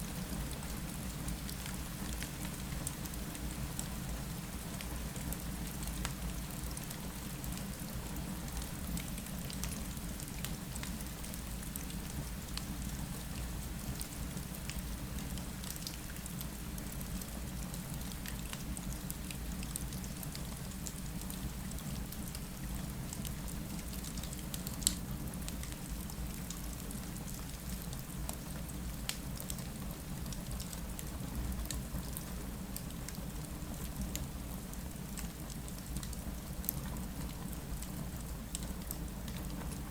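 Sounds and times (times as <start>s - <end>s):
rain against a window: 0.1s - 39.9s
fireplace crackling and popping: 29.0s - 31.8s, 34.7s - 39.9s.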